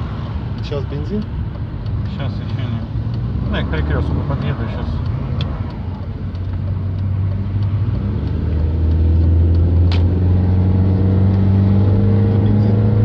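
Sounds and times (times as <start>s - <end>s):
car engine drone: 0.0s - 13.0s
sharp click: 5.0s - 10.2s.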